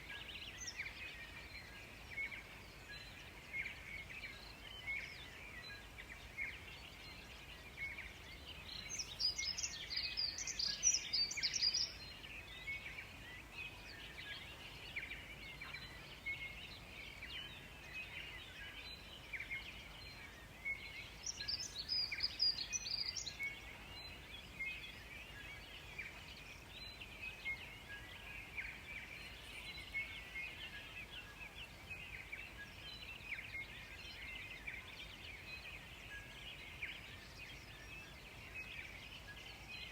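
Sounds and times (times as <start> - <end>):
birds singing: 0.0 - 39.9.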